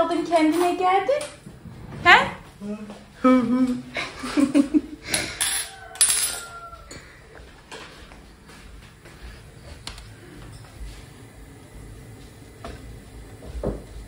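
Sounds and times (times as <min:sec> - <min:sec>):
tableware clinking: 0:05.2 - 0:07.1.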